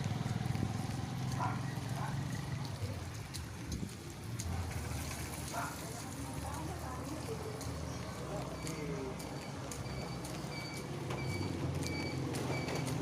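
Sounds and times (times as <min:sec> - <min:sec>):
small vehicle engine running: 0:00.0 - 0:03.0.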